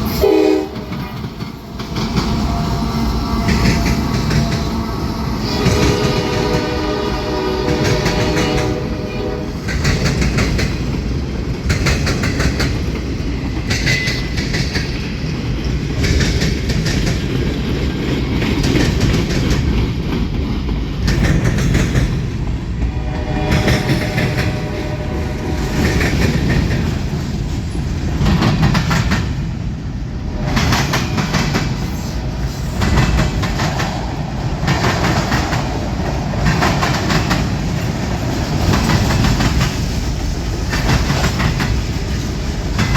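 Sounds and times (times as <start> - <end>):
train wheels clicking over rail joints: 0.0 - 29.7, 30.3 - 42.9
low train rumble: 0.0 - 42.9
locomotive horn blast: 0.1 - 1.1, 2.5 - 9.6, 22.8 - 26.0.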